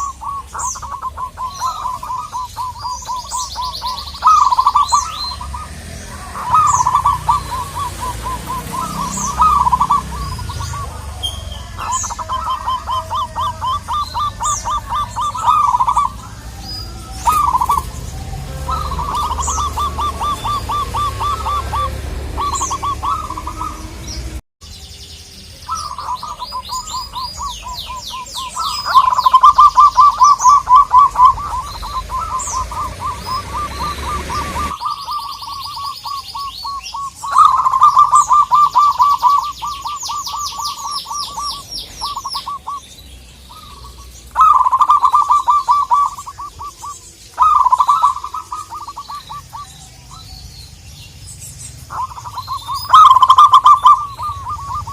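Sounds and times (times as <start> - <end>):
small birds chirping: 0.0 - 54.9
doves cooing in stuttering runs: 28.8 - 34.8.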